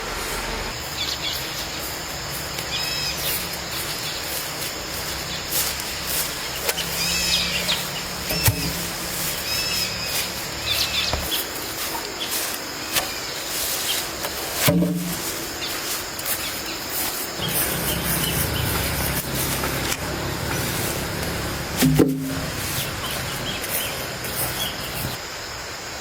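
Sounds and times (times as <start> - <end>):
steady background noise: 0.0 - 26.0
high chirping bird calls: 0.8 - 14.1, 17.4 - 19.9.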